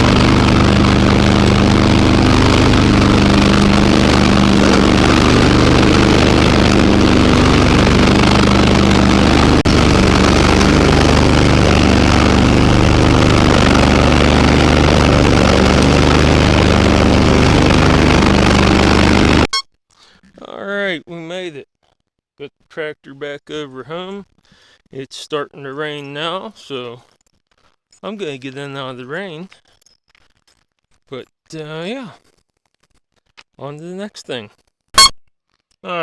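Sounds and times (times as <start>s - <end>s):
garden tractor engine running: 0.0s - 19.6s.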